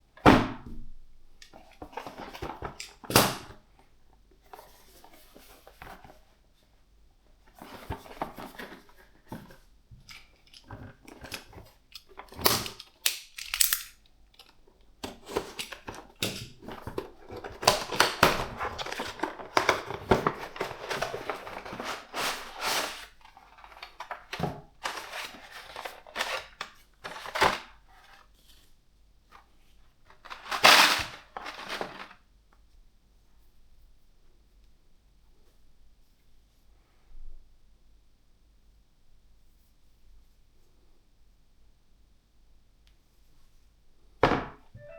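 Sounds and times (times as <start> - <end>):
sharp clicks and snaps: 13.0 - 14.5
packaging rustling and crinkling: 15.1 - 28.6, 30.0 - 32.2.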